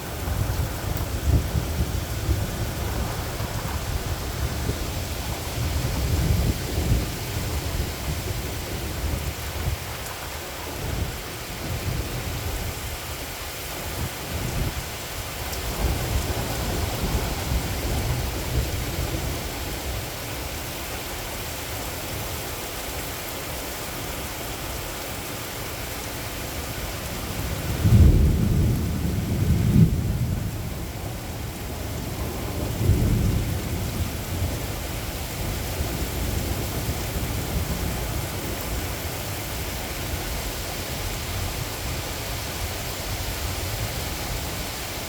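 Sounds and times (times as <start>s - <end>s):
thunder rumbling: 0.0s - 10.2s, 27.4s - 40.2s
steady rain: 0.0s - 45.0s.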